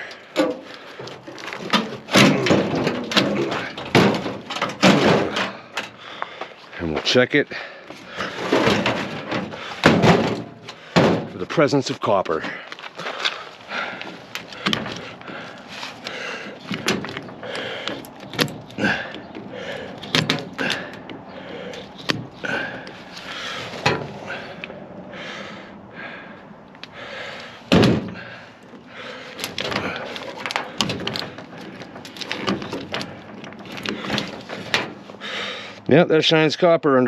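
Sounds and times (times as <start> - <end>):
metal knocks and clunks: 0.3 - 6.0, 7.9 - 24.8, 27.7 - 35.3
heavy thud: 8.3 - 11.5, 27.7 - 28.4.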